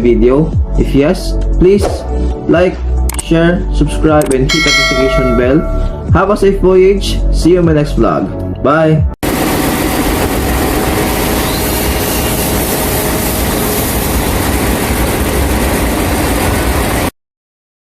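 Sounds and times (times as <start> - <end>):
diesel generator running: 9.2 - 17.0.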